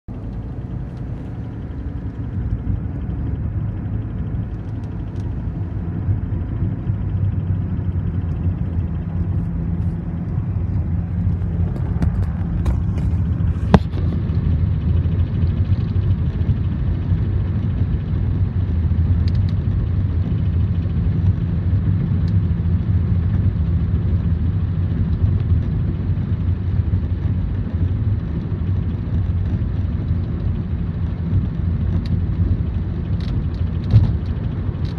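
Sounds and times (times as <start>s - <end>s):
car droning: 0.1s - 14.4s.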